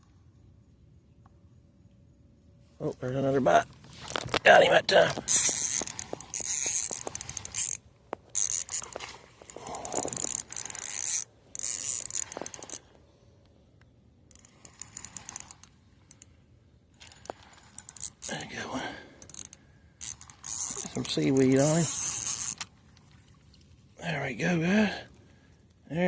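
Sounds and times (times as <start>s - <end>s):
fishing reel ticking whir: 5.2s - 13.0s, 14.3s - 22.7s.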